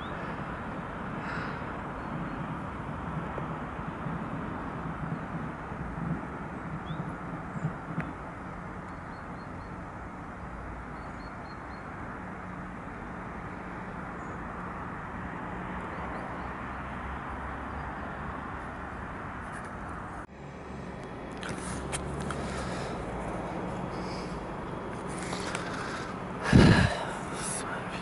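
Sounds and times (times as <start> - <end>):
distant train rumbling: 0.0 - 19.4, 20.0 - 28.0
station background noise: 21.1 - 28.0.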